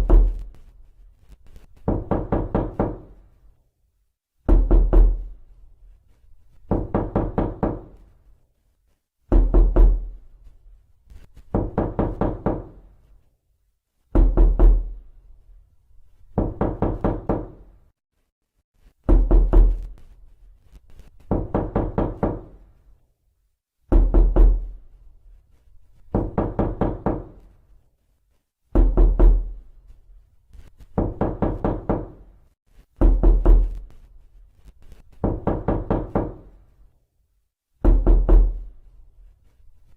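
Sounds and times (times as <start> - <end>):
knocking on a door: 0.0 - 0.5, 1.8 - 3.2, 4.4 - 5.4, 6.7 - 8.0, 9.3 - 10.2, 11.5 - 12.9, 14.1 - 15.0, 16.3 - 17.7, 19.0 - 19.9, 21.3 - 22.6, 23.9 - 24.8, 26.1 - 27.5, 28.7 - 29.6, 30.9 - 32.3, 33.0 - 33.8, 35.2 - 36.6, 37.8 - 38.6.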